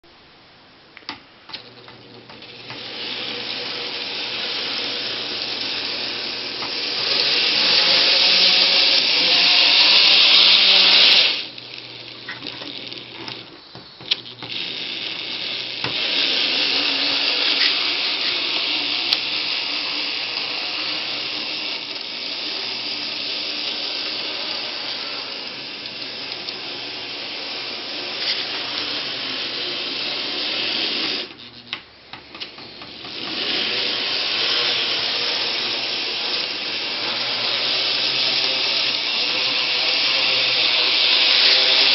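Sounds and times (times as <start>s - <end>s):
model train running on track: 1.9s - 13.5s, 14.4s - 31.3s, 32.5s - 41.9s
clicks: 10.4s - 29.1s.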